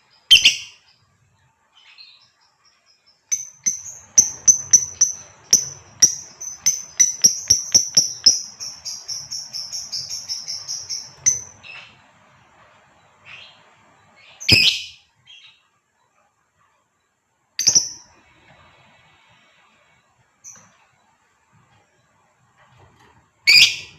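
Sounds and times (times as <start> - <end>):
lovebird chirping and trilling: 0.2 - 0.8, 3.3 - 12.0, 14.2 - 15.6, 17.6 - 18.1, 23.5 - 23.9.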